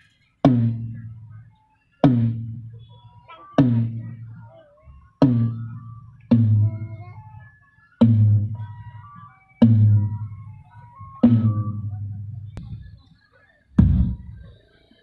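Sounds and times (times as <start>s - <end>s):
low drum strikes through speakers: 0.4s - 1.2s, 2.0s - 2.8s, 5.2s - 7.1s, 8.0s - 8.6s, 9.6s - 13.0s, 13.8s - 14.5s.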